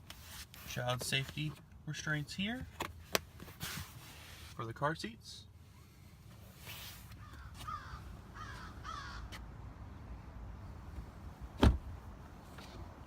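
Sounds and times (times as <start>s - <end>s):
harsh bird calls: 7.2s - 9.3s
car door shutting: 11.6s - 12.0s.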